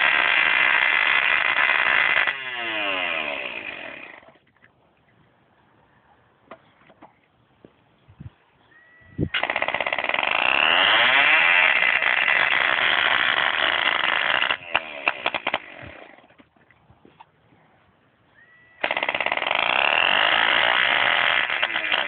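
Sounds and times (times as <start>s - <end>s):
small model engine running: 9.4s - 16.0s, 18.8s - 22.0s.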